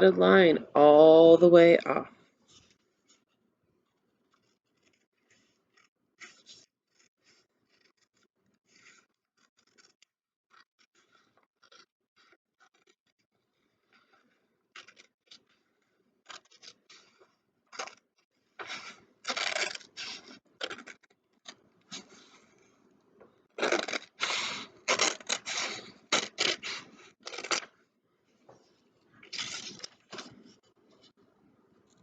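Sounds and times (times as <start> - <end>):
scissors snipping paper: 16.3 - 18.0, 18.6 - 21.1, 23.6 - 27.7.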